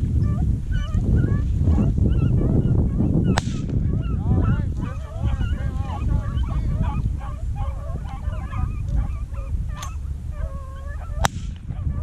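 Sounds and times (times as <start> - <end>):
dogs baying: 0.2 - 12.0
sharp crack: 3.4 - 3.8, 11.2 - 11.7.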